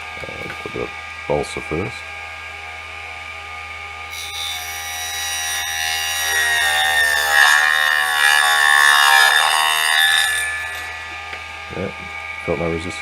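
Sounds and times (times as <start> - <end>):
table saw motor whine: 3.5 - 12.8
saw cutting wood: 4.1 - 11.5.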